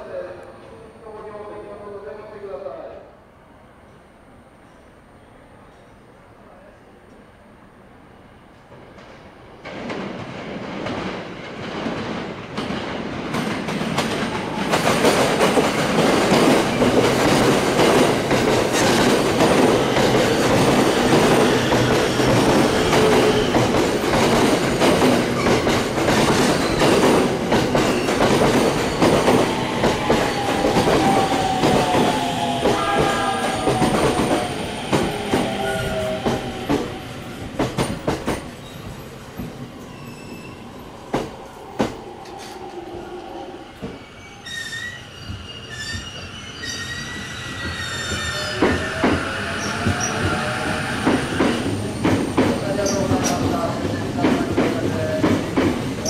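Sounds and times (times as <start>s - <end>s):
train rumble: 8.7s - 39.8s
falling train whine: 14.0s - 54.2s.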